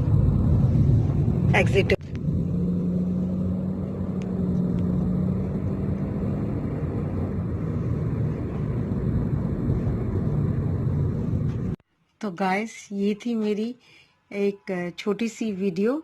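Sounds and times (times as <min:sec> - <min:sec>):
vehicle engine rumbling: 0:00.0 - 0:11.8.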